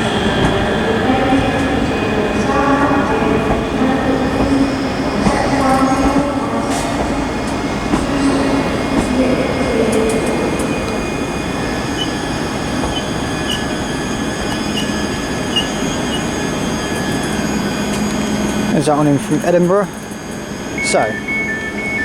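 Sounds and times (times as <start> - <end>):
train wheels rumbling on rail: 0.0 - 20.8
high wheel squeal: 10.7 - 18.9
short high squeaks: 11.9 - 17.4.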